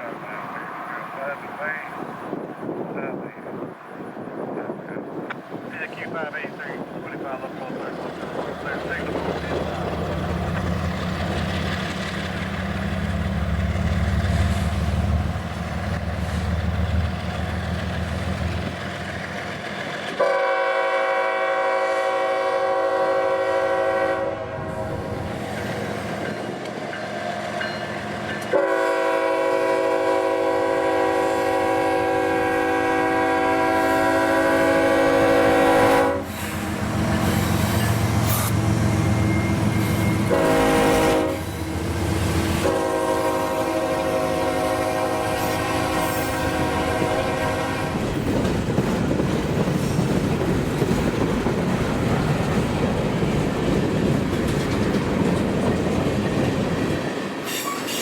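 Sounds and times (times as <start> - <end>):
diesel locomotive engine drone: 0.0 - 58.0
locomotive horn blasts: 20.2 - 25.2, 28.5 - 36.3, 38.9 - 41.7, 42.6 - 48.0.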